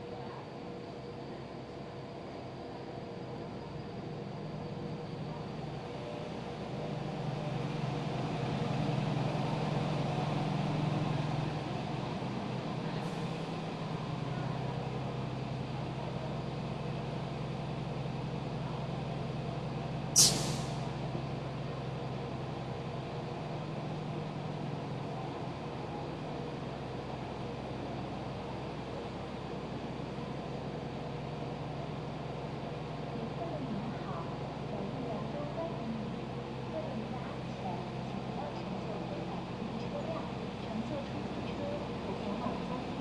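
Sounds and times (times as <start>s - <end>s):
train rumble and hum: 0.0s - 43.0s
short sharp hiss of air: 20.2s - 20.9s.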